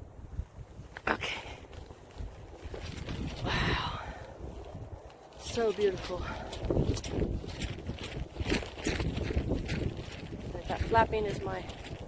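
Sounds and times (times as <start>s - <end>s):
wind rumbling on microphone: 0.0s - 12.0s
raincoat flapping in wind: 1.6s - 12.0s.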